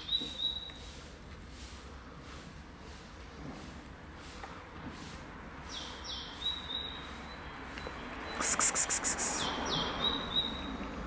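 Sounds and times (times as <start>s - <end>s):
songbird singing: 0.0s - 0.8s, 5.7s - 11.0s
sharp ticks: 8.4s - 9.4s.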